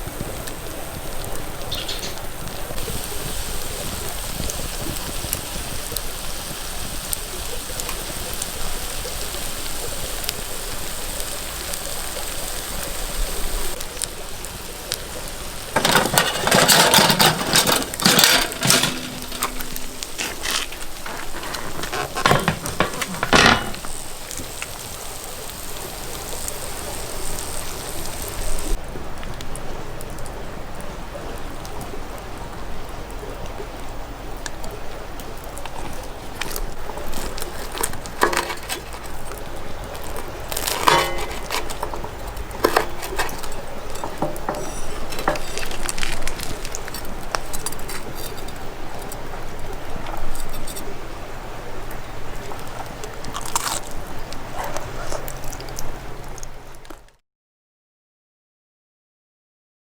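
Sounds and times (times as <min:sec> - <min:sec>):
wood fire crackling: 0:00.0 - 0:30.3, 0:34.9 - 0:57.1
handling and clattering noises: 0:14.9 - 0:28.8, 0:35.6 - 0:50.9.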